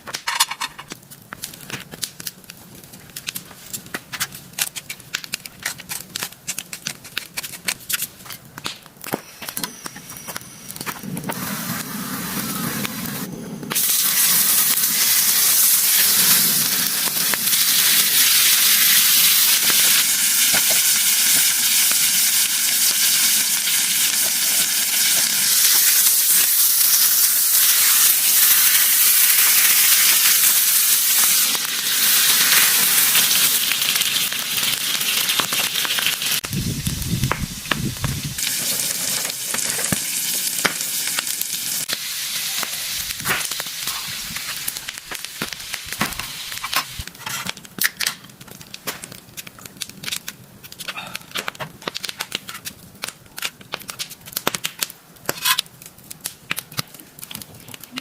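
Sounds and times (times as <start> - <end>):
food sizzling in hot oil: 9.2 - 47.5.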